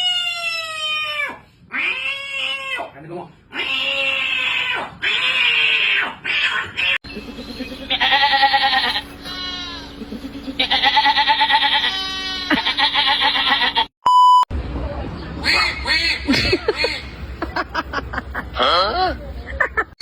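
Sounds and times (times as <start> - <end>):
goat bleating: 3.5 - 13.9
steady low hum: 7.1 - 13.9, 14.5 - 20.0
short loud beep: 14.0 - 14.4.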